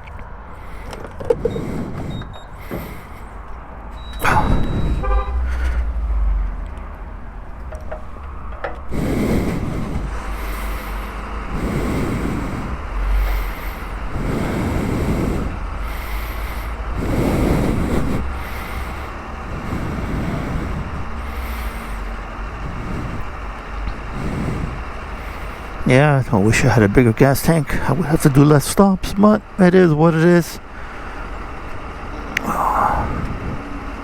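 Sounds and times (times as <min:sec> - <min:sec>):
low rumbling surges: 0:00.0 - 0:34.0
road traffic noise: 0:00.0 - 0:34.0.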